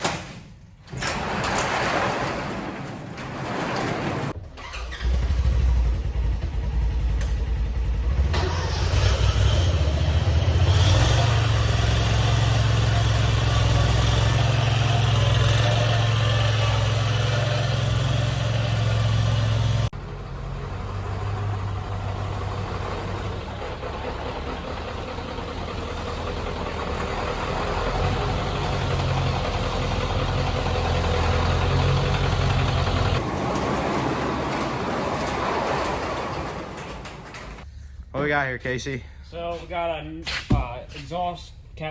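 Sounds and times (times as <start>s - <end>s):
diesel engine idling: 5.6s - 37.7s.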